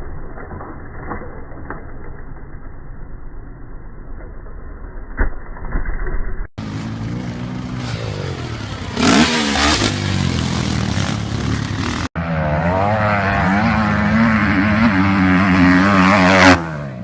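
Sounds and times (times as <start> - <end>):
dirt bike engines revving: 6.6 - 17.0.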